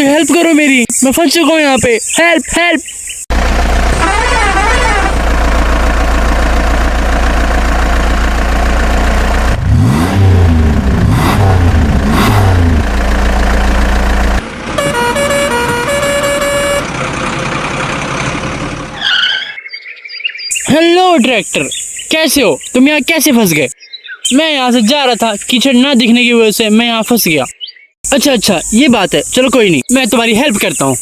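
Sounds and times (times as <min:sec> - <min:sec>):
truck engine revving: 0:03.3 - 0:19.0
musical horn tune: 0:04.0 - 0:05.2, 0:14.8 - 0:16.9.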